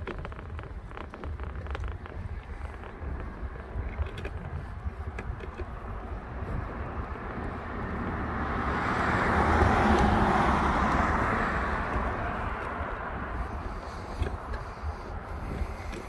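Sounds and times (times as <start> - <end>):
car passing by: 6.8 - 14.2.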